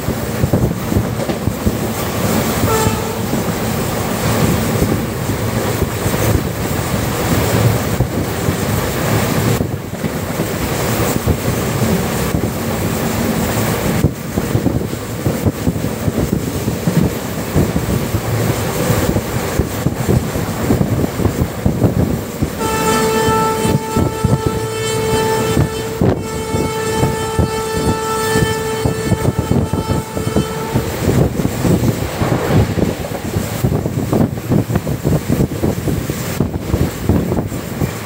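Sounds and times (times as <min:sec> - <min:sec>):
train wheels clattering on rails: 0:00.0 - 0:38.0
locomotive horn blast: 0:02.5 - 0:03.5, 0:22.6 - 0:31.3
rushing air: 0:29.1 - 0:38.0.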